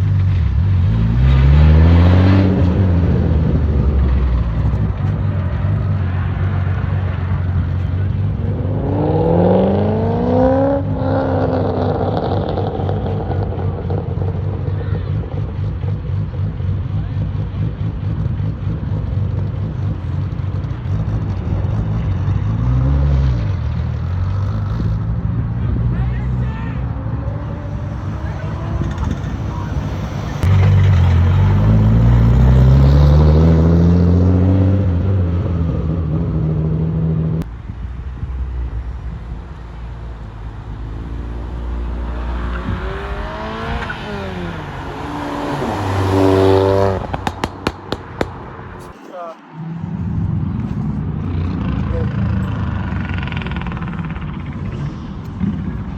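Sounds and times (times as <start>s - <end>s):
car engine revving: 0.0s - 55.9s
car engine running: 35.6s - 48.9s
sharp cracks: 47.0s - 49.0s.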